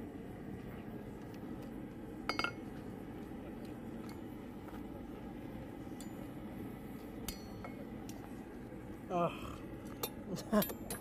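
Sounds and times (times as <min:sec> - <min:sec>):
steady low rumble: 0:00.0 - 0:11.0
metal tongs clinking: 0:10.0 - 0:11.0.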